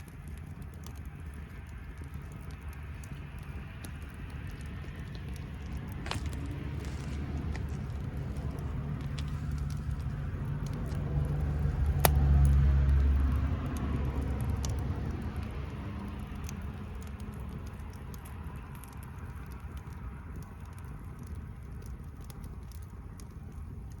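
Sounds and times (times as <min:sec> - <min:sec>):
campfire crackling: 0:00.0 - 0:24.0
sharp pops of fire: 0:00.0 - 0:24.0
motor vehicle passing: 0:01.3 - 0:19.6.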